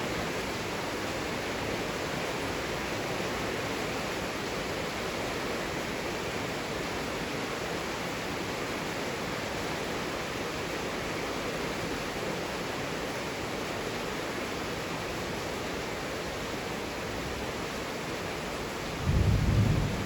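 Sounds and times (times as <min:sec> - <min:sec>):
heavy rain: 0:00.0 - 0:20.0
rumble of thunder: 0:19.0 - 0:20.0.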